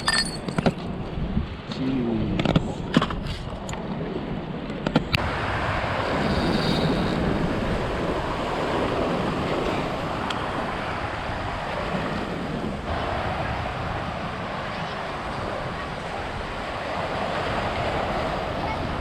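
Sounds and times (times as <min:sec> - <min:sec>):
wind on microphone: 0:00.0 - 0:19.0
surf washing against rocks: 0:04.9 - 0:19.0.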